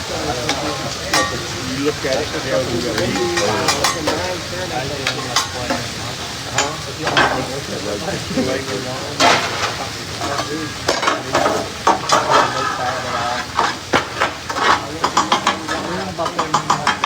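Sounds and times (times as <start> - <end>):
food sizzling on a griddle: 0.0 - 17.0
metal spatulas scraping griddle: 9.2 - 17.0.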